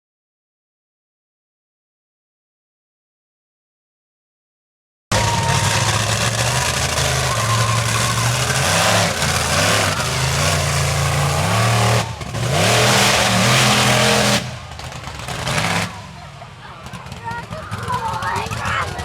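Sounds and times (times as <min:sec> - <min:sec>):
truck engine revving hard: 0:05.1 - 0:19.0.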